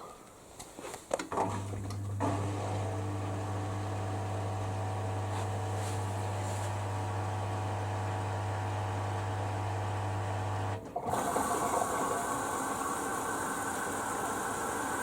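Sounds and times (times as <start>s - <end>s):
washing machine hum: 1.3s - 15.0s
water filling drum: 10.7s - 15.0s.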